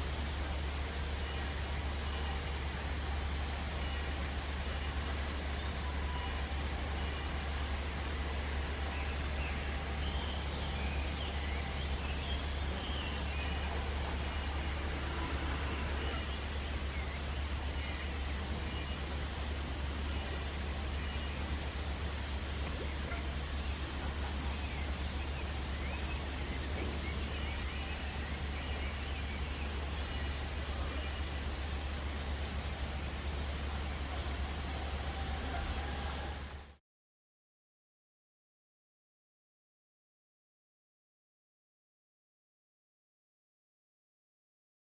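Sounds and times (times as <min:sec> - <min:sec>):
low outdoor rumble: 0:00.0 - 0:36.8
high-pitched insect song: 0:15.9 - 0:36.8.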